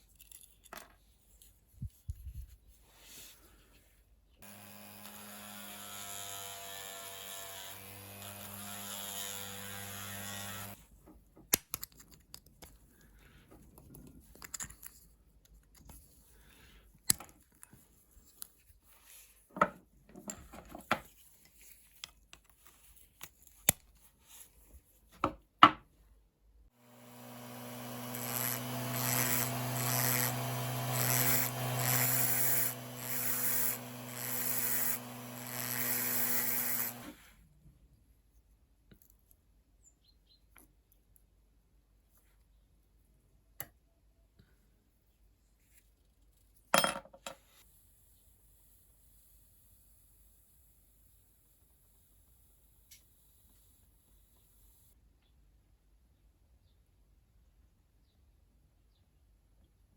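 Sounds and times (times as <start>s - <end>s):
electric power tool running: 4.4s - 10.8s, 26.8s - 37.2s
tools and parts clicking: 11.5s - 12.8s, 14.3s - 15.9s.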